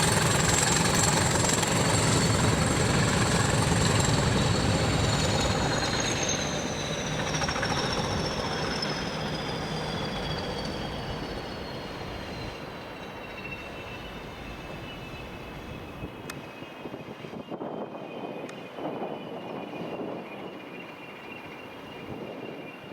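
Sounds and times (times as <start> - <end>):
train rumble: 0.0 - 16.5
high whining tones falling in pitch: 3.9 - 15.6.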